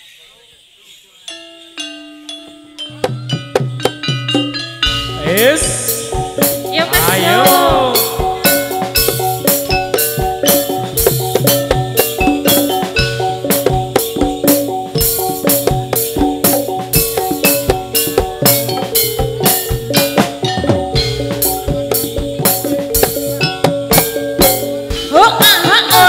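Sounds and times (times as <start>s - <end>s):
metallophone melody: 1.1s - 26.0s
driving drum beats: 1.9s - 26.0s.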